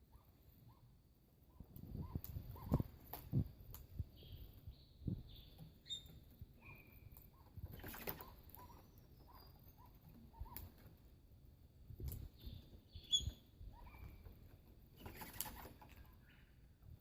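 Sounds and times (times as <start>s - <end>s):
birds chirping softly: 0.0s - 17.0s.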